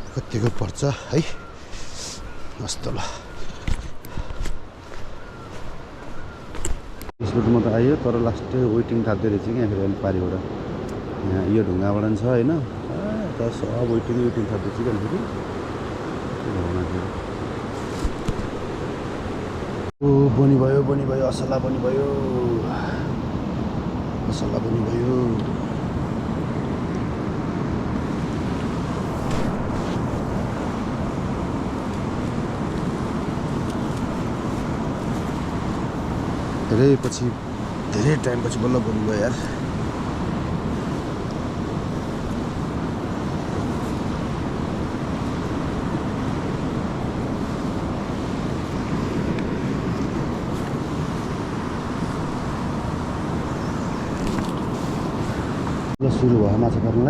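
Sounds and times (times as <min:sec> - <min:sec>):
wind on microphone: 0:00.0 - 0:07.1, 0:12.5 - 0:19.9, 0:21.8 - 0:56.0
fast river rushing: 0:26.0 - 0:56.0.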